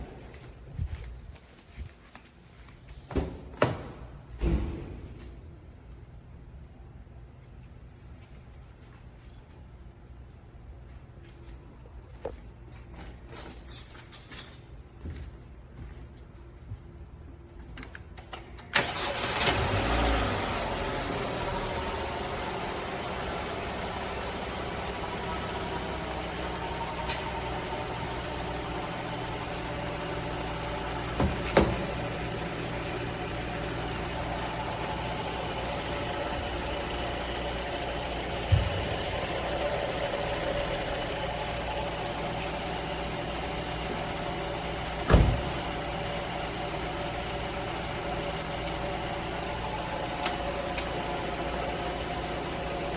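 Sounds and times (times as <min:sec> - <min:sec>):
car engine starting and idling: 0:17.9 - 0:52.9.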